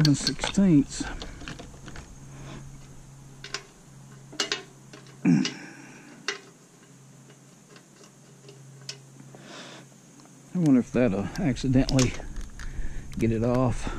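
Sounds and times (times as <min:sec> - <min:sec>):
metal clinking and clanking: 0:00.0 - 0:02.1, 0:03.4 - 0:05.6, 0:06.2 - 0:09.1.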